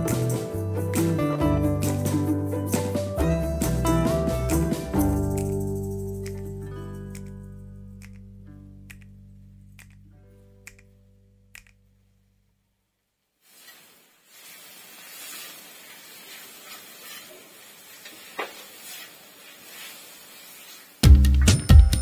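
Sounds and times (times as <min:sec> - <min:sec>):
spices sizzling in hot oil: 0:13.4 - 0:21.1
metal spatula scraping pan: 0:15.1 - 0:19.7.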